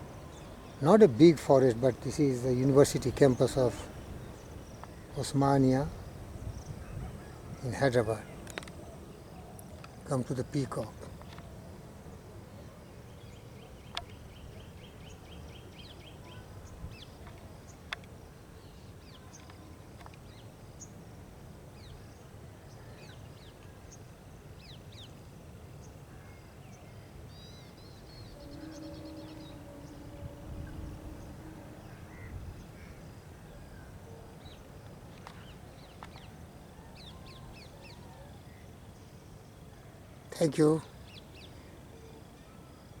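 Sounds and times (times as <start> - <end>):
small birds chirping: 27.3 - 39.5
faint low droning tone: 28.3 - 33.0.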